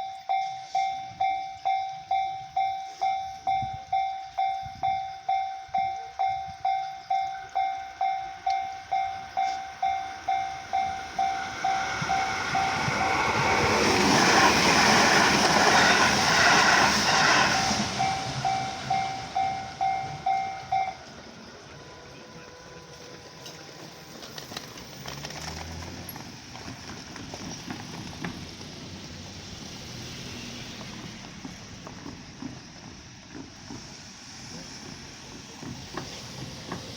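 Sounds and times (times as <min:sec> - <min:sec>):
level crossing bell ringing: 0:00.0 - 0:13.4, 0:18.0 - 0:21.1
train passing: 0:00.0 - 0:36.9.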